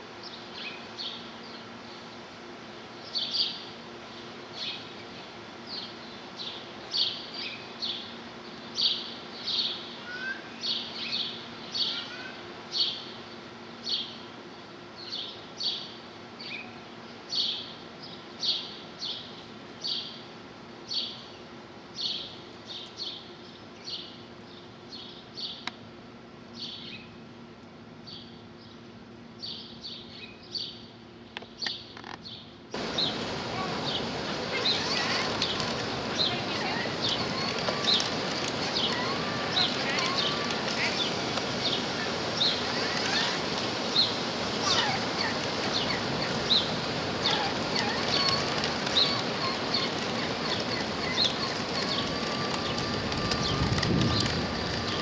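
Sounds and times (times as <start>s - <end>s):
faint steady hum: 0.0s - 55.0s
small bird chirping: 31.5s - 55.0s.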